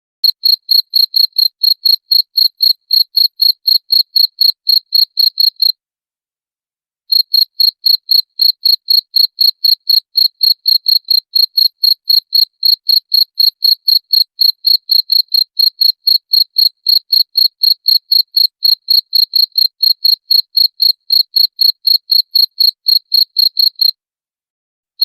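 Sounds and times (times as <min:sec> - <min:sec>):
cricket chirping: 0:00.2 - 0:05.7, 0:07.1 - 0:23.9.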